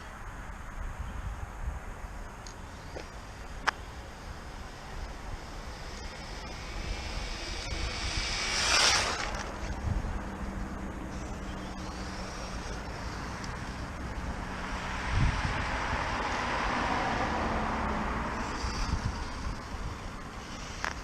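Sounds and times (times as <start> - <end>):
low steady hum: 0.0 - 16.6
rc car rushing past: 2.5 - 21.0.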